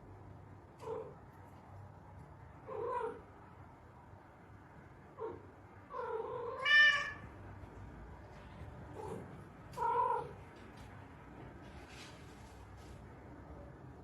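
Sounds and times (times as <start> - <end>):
cat meowing and yowling: 6.0 - 7.2.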